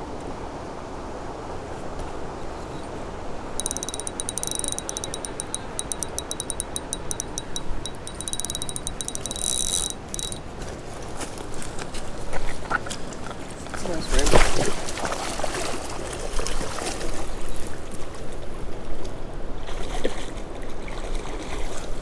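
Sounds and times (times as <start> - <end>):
fishing reel cranking whir: 3.6 - 10.4.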